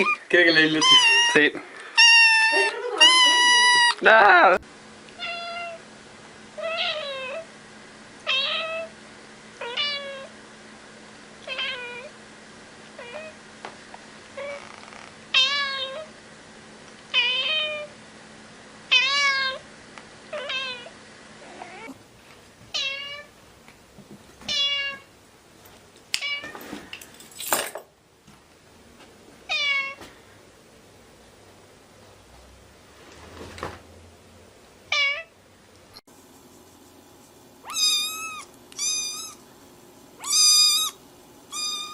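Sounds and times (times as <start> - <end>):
kitten meowing: 0.0 - 4.0, 37.6 - 39.4, 40.2 - 41.9.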